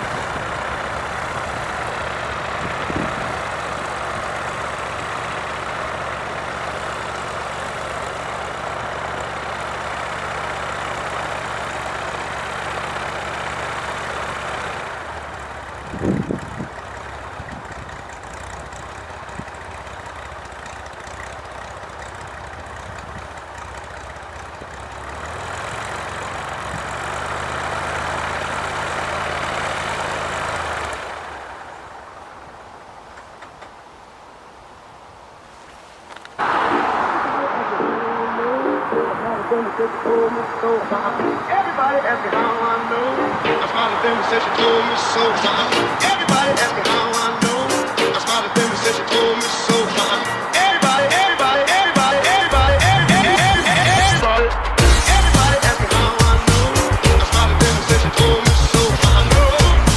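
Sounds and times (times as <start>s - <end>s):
propeller plane engine droning: 0.0s - 59.9s
loud bump: 52.0s - 59.9s.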